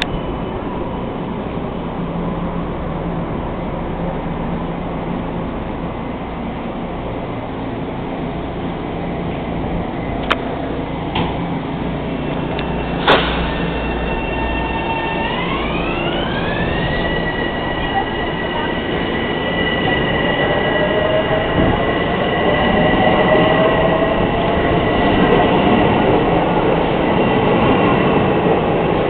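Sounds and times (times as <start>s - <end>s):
electric train propulsion whine: 0.0s - 29.0s
train wheels rumbling on rails: 0.0s - 29.0s.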